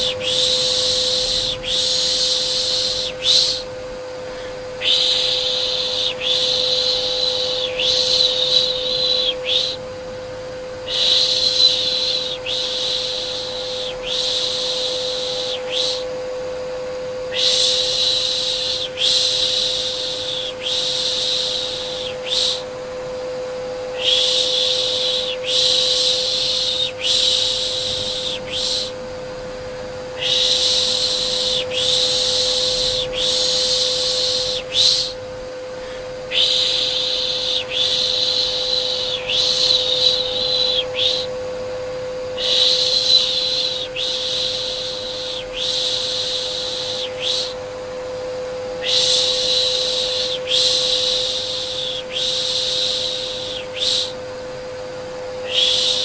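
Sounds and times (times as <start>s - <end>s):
person shushing: 0.0s - 3.7s, 4.3s - 9.8s, 17.3s - 22.7s, 23.9s - 29.0s, 35.8s - 41.3s
vacuum cleaner hum: 0.0s - 56.0s.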